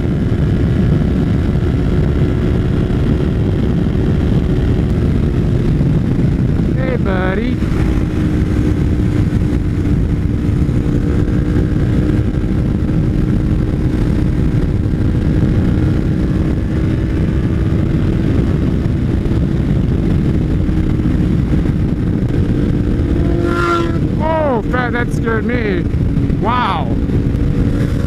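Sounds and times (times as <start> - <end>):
motorcycle engine cruising: 0.0 - 28.0.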